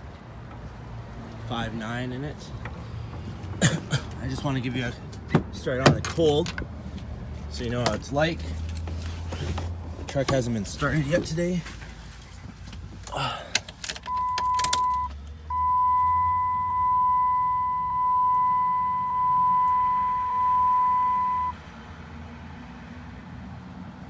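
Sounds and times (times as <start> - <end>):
cab clicks and rattles: 5.0 - 15.0
dashboard warning chime beep: 14.1 - 21.6.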